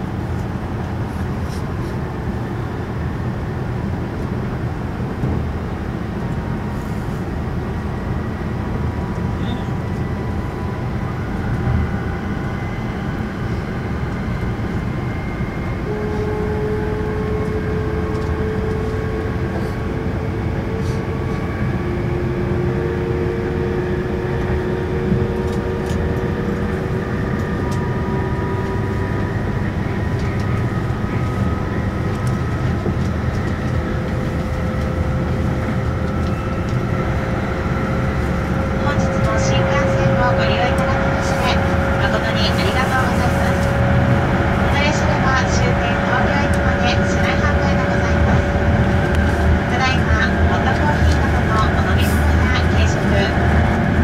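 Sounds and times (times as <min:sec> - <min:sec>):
train cabin low rumble: 0:00.0 - 0:54.0.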